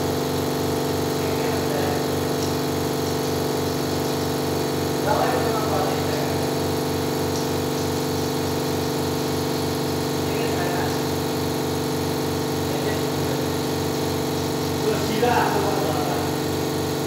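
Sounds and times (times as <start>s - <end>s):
engine running with pulsing hum: 0.0s - 17.0s.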